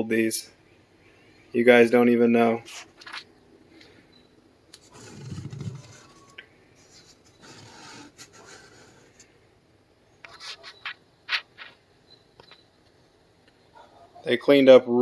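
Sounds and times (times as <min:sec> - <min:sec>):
rubbing and scraping handling noise: 0:04.8 - 0:09.3, 0:10.2 - 0:11.8.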